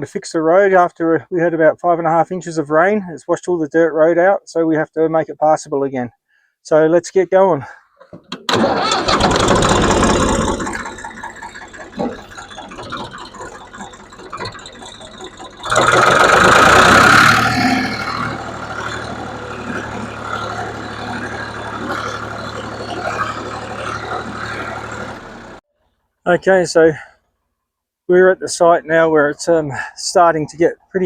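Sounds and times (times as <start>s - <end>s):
tractor engine running: 8.0s - 25.6s.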